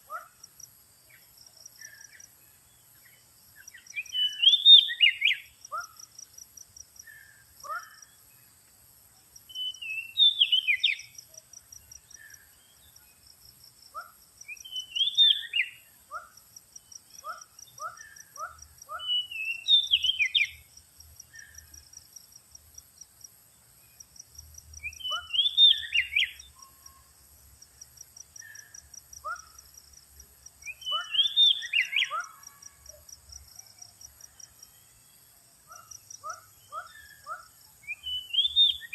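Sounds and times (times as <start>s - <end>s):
bird singing whistled notes: 1.1s - 6.0s, 9.5s - 13.2s, 14.4s - 16.3s, 17.0s - 20.7s, 24.8s - 27.1s, 30.6s - 32.8s, 35.7s - 38.9s.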